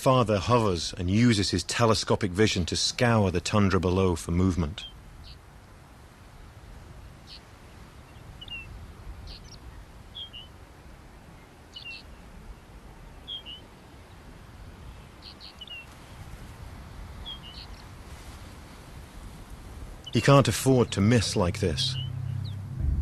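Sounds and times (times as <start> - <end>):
low rumble of wind: 0.0 - 23.0
small bird chirping: 8.1 - 8.7, 9.3 - 10.5, 11.7 - 12.2, 13.2 - 13.6, 15.1 - 16.2, 17.2 - 17.9, 21.9 - 22.7.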